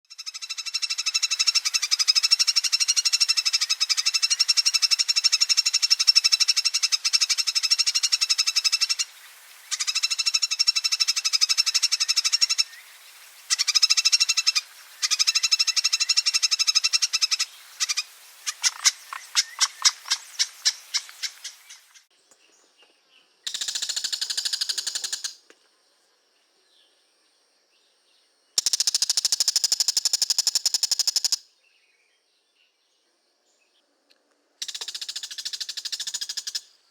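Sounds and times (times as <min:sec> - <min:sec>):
songbird chattering trill: 0:00.1 - 0:22.6, 0:23.4 - 0:25.4, 0:28.6 - 0:31.4.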